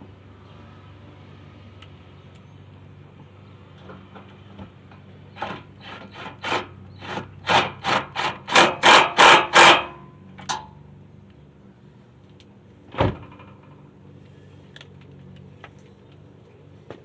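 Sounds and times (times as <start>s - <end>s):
hand tool scraping: 5.3s - 10.0s.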